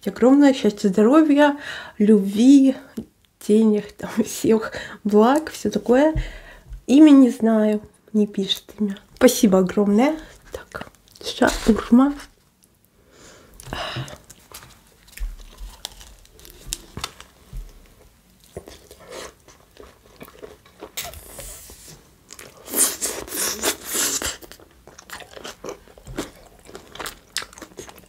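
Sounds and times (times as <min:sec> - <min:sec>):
chewing food: 0:13.6 - 0:21.4, 0:22.3 - 0:28.0.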